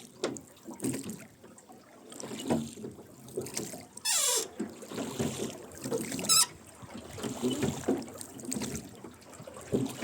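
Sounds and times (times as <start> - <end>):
oars splashing in water: 0.0 - 10.0
oarlock creak: 4.0 - 4.6, 6.1 - 6.6.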